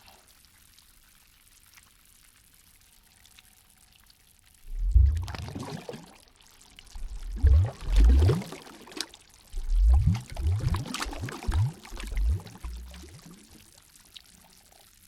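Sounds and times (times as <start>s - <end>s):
faint water trickle: 0.0s - 15.0s
water sloshing and gurgling: 4.6s - 13.9s.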